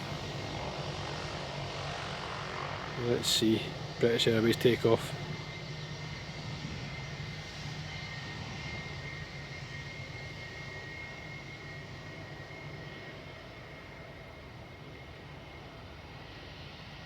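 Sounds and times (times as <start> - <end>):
distant airliner engines droning: 0.0 - 17.0.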